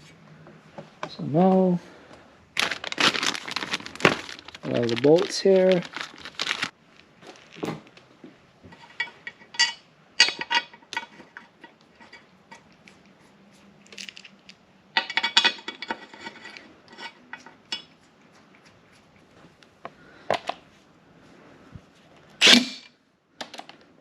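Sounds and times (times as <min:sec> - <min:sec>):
metal tools clinking: 0:08.7 - 0:12.7, 0:13.9 - 0:17.8.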